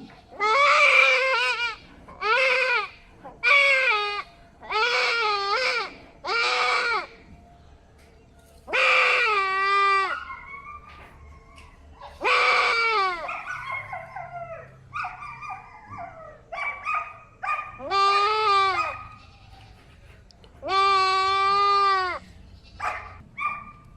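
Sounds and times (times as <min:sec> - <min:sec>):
goat bleating: 0:00.0 - 0:07.3, 0:08.7 - 0:10.3, 0:12.0 - 0:13.9, 0:17.8 - 0:23.2.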